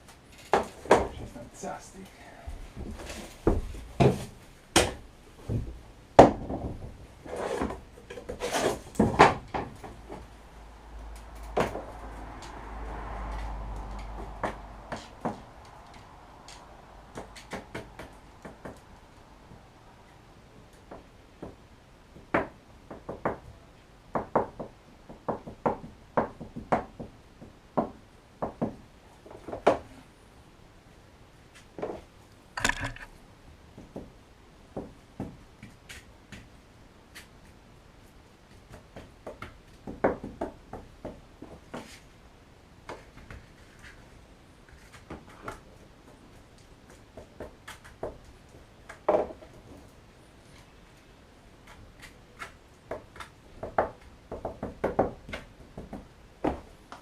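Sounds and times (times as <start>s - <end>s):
hard objects knocking: 32.6s - 33.2s.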